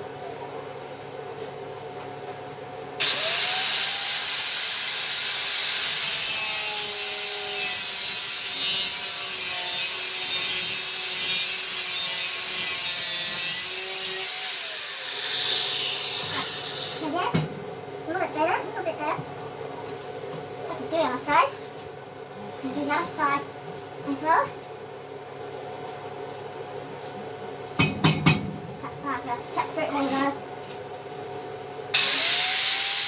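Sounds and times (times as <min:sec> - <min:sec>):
power tool cutting with squeal: 0:03.0 - 0:17.0, 0:32.0 - 0:33.0.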